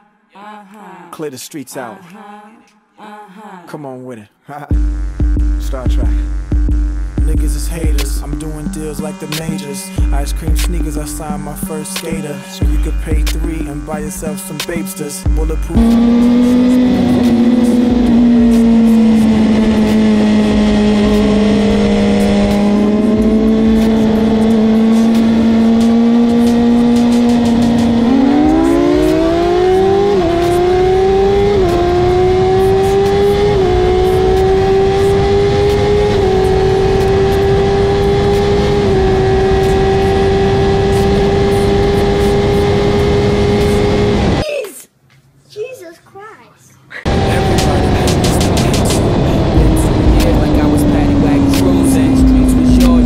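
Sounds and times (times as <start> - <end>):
motorcycle engine revving: 15.3 - 44.4, 47.0 - 53.0
wind rush: 47.1 - 53.0.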